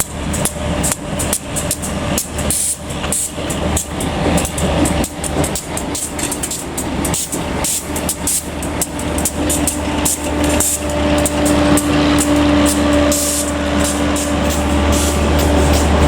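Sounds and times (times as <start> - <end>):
diesel locomotive engine hum: 0.0 - 16.0
train wheels clicking over rail joints: 0.0 - 16.0
steady tone: 9.4 - 16.0.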